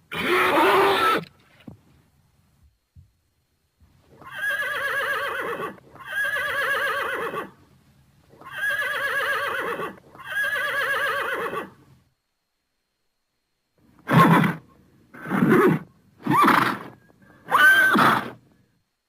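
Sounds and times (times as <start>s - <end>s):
horse whinnying: 0.1s - 1.3s, 4.2s - 7.5s, 8.4s - 11.7s, 14.1s - 14.6s, 15.2s - 18.4s.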